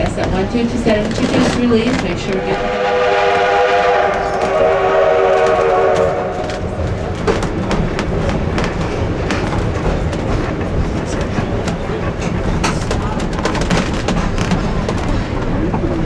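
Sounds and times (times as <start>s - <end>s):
train rumble: 0.0s - 16.0s
wheels clicking over rail joints: 0.0s - 16.0s
steam locomotive whistle: 2.2s - 7.1s.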